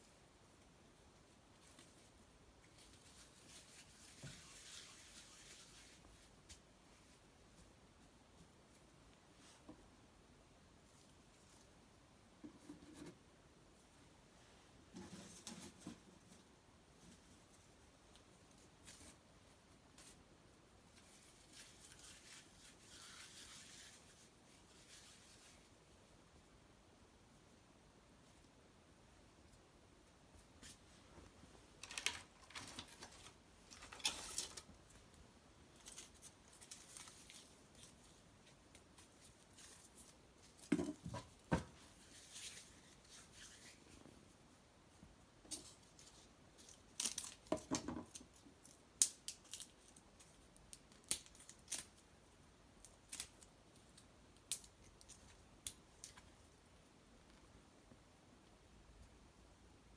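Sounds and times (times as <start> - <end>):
rustling tearing crackles: 31.7 - 35.1, 46.0 - 47.5.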